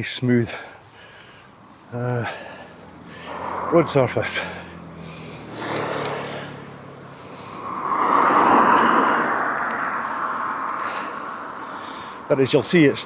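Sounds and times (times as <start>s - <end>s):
car passing close by: 2.6s - 12.8s.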